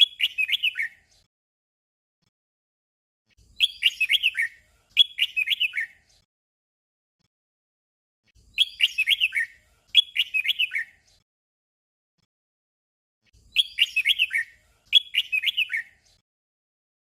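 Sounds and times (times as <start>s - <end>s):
bird whistled song: 0.0s - 1.2s, 3.4s - 6.2s, 8.4s - 11.2s, 13.4s - 16.2s.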